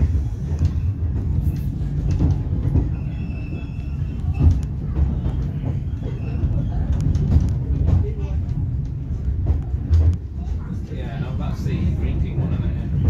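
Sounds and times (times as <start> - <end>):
railcar engine and wheels rumbling: 0.0 - 13.0
faint high wheel squeal: 2.8 - 6.9.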